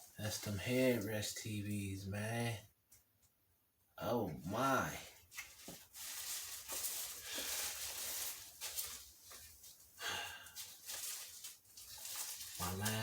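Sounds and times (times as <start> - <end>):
packaging rustling: 5.2 - 13.0.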